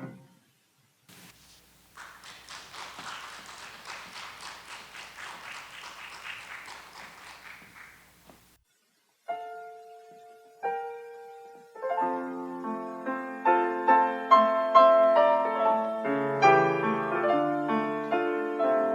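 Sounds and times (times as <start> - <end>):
applause: 1.1 - 8.6.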